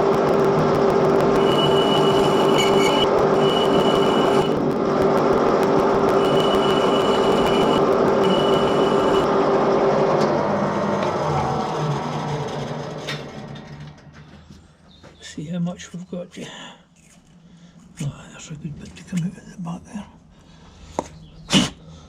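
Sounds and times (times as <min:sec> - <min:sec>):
thin high whine: 0:00.0 - 0:09.6.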